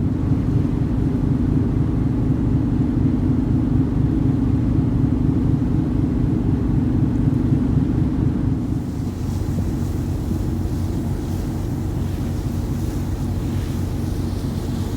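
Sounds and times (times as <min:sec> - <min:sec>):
ferry engine rumbling: 0:07.8 - 0:14.9.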